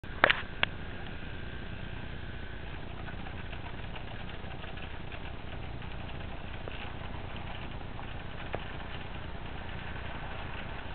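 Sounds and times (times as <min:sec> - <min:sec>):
faint high whine: 0:00.0 - 0:10.9
model train motor running: 0:02.6 - 0:10.9
wheels clicking on rails: 0:02.6 - 0:10.9.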